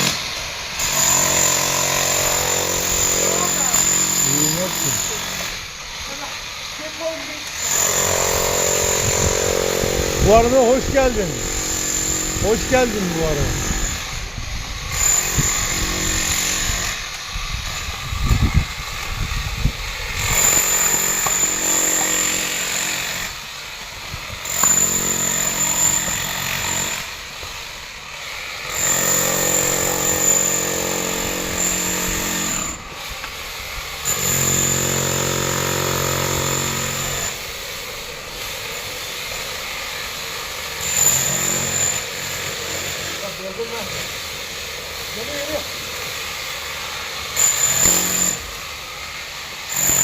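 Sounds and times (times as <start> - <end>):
power tool motor whining: 0.0 - 50.0.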